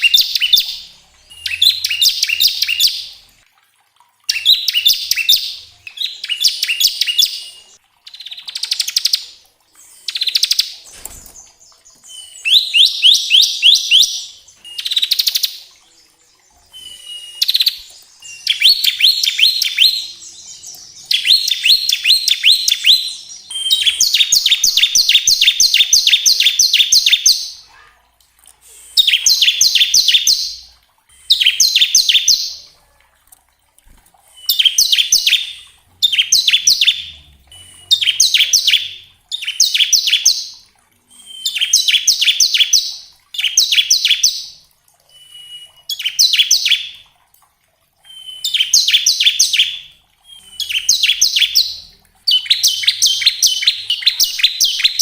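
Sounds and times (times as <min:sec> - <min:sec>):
bird singing rapid chips: 0:00.0 - 0:03.3, 0:04.3 - 0:27.7, 0:28.9 - 0:32.7, 0:34.2 - 0:47.0, 0:48.0 - 0:55.0
bird steady whistle: 0:16.7 - 0:20.1, 0:34.3 - 0:40.3, 0:41.1 - 0:42.8, 0:45.1 - 0:47.0, 0:48.1 - 0:51.6.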